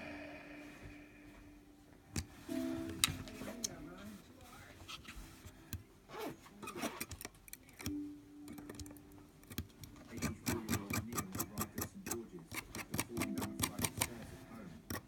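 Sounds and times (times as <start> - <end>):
hand tools clicking and ticking: 7.5 - 14.2.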